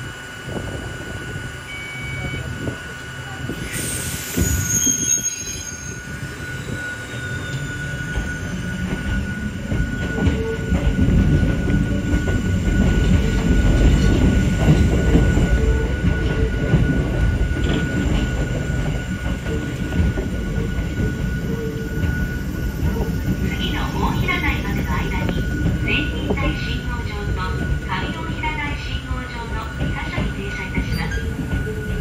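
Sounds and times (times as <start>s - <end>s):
electric train rumbling on rails: 0.0s - 32.0s
high-pitched wheel squeal: 3.6s - 12.4s.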